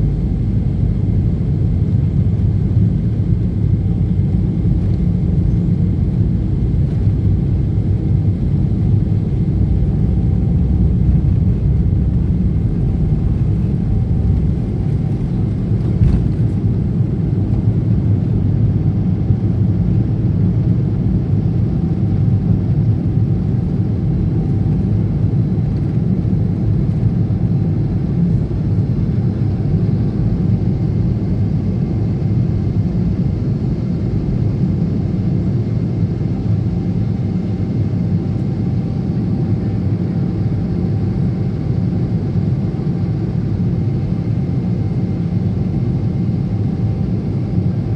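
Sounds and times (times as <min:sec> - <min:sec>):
faint steady whine: 0:00.0 - 0:20.8
airliner engines and airflow rumble: 0:00.0 - 0:47.9.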